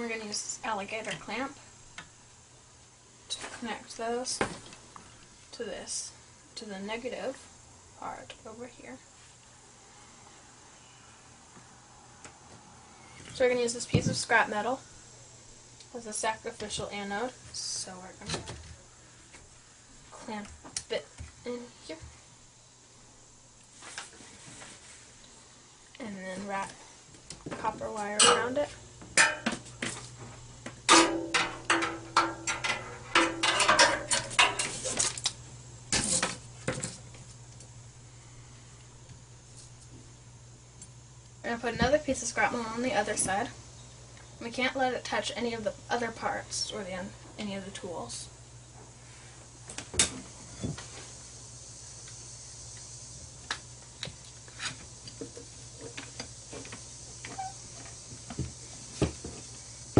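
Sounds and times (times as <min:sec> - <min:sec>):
low hum and hiss: 0:00.0 - 0:59.9
scrap metal clinking and knocking: 0:30.9 - 0:35.0.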